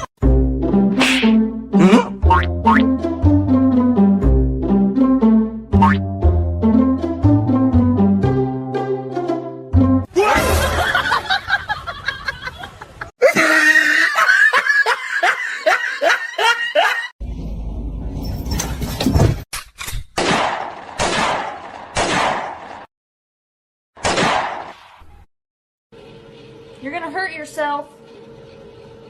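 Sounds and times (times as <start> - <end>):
laughter in bursts: 10.2 - 17.1.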